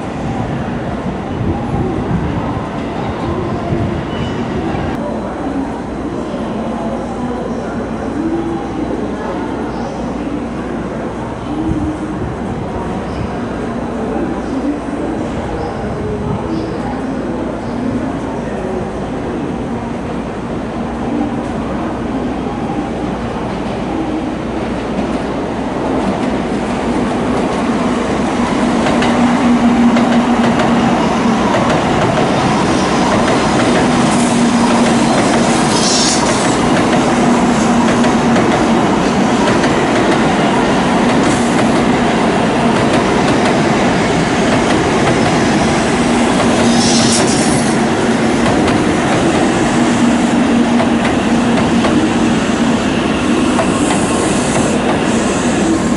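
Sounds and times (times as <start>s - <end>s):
bullet train running rumble: 0.0s - 55.9s
high-pitched train squeals: 4.0s - 4.8s, 34.2s - 36.6s, 46.6s - 47.8s.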